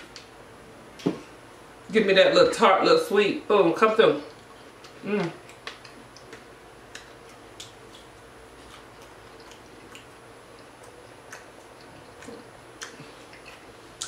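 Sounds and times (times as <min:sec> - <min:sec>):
chewing with wet mouth clicks: 0:04.3 - 0:14.0.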